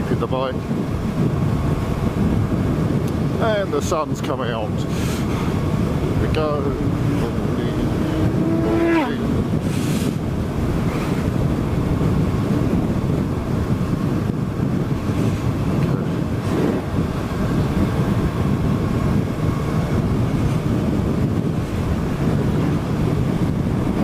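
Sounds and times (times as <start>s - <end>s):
wind rushing over microphone: 0.0s - 24.0s
motorcycle engine running: 5.3s - 24.0s.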